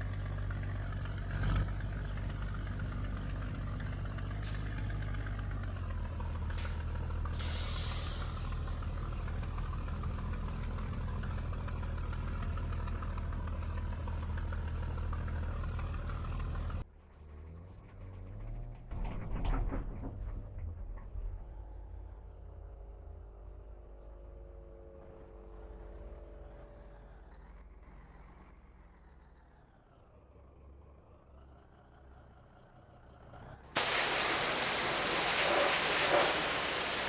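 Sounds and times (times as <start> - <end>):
diesel truck engine running: 0.0 - 19.0, 20.1 - 37.0
air brake hissing: 7.4 - 8.9, 33.8 - 37.0.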